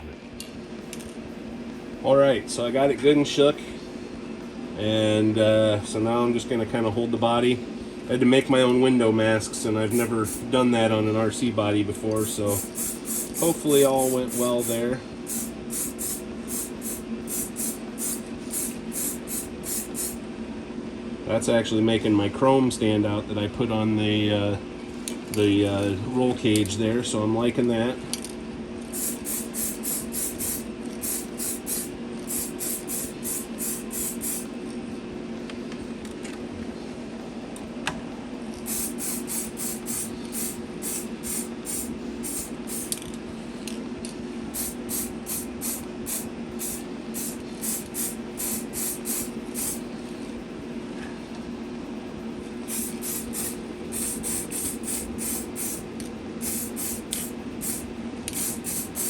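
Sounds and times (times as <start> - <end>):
extraction fan humming: 0.0 - 59.0
aerosol spray can hissing: 9.9 - 10.5, 12.2 - 20.2, 28.9 - 34.5, 38.6 - 42.9, 44.6 - 49.9, 52.7 - 55.8, 56.4 - 59.0.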